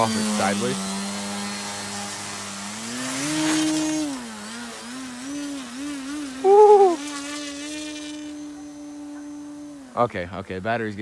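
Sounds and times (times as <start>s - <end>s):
model plane electric motor whining: 0.0s - 11.0s
man whooping: 6.4s - 7.0s.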